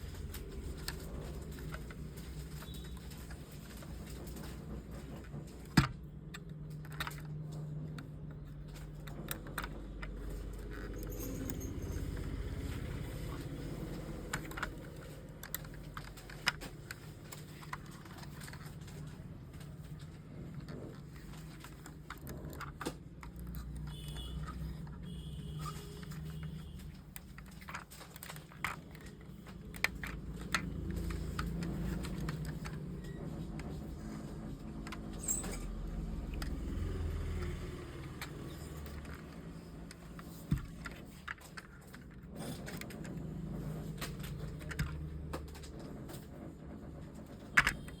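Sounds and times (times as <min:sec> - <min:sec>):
model car clicking and rattling: 0:00.0 - 0:25.0.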